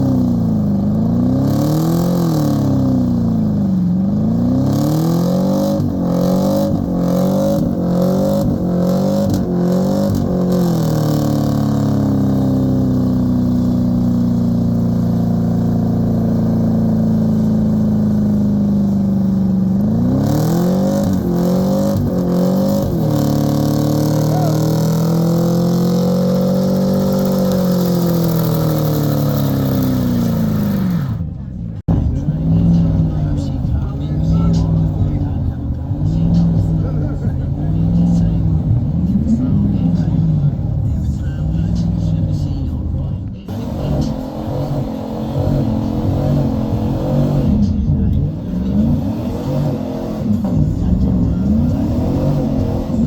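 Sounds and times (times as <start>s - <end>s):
truck engine revving: 0.0s - 53.0s.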